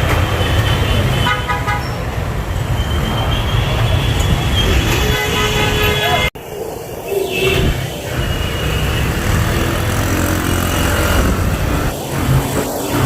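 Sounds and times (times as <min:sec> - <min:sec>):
road traffic: 0:00.0 - 0:13.0
vehicle horn: 0:04.8 - 0:06.3.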